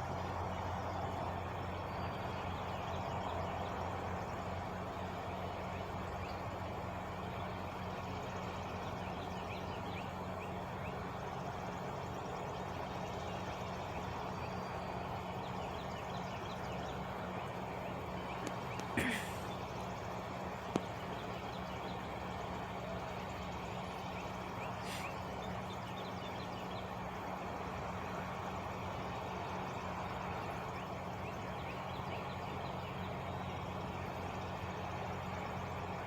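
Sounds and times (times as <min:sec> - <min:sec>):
truck engine idling: 0:00.1 - 0:36.0
birds chirping: 0:01.8 - 0:27.7
short hiss: 0:24.8 - 0:25.1.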